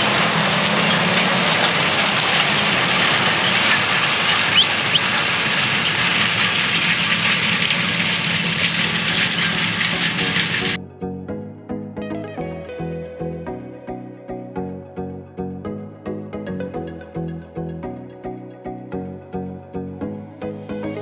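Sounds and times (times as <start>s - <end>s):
combine harvester running: 0.0s - 10.8s.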